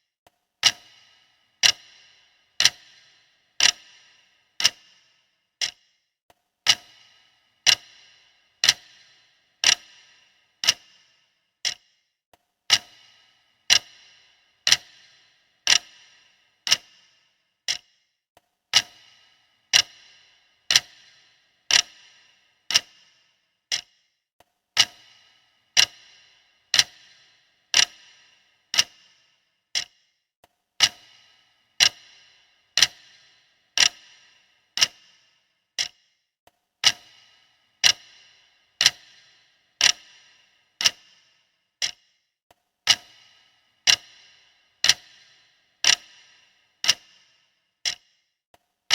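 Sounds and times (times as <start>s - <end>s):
clock ticking: 0.6s - 12.1s, 12.7s - 18.1s, 18.7s - 24.2s, 24.8s - 30.2s, 30.8s - 36.2s, 36.8s - 48.3s.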